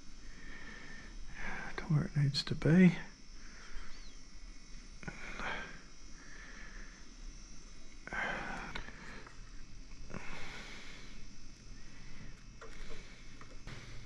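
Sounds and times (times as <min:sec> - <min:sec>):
person breathing through nose: 0:10.1 - 0:14.0.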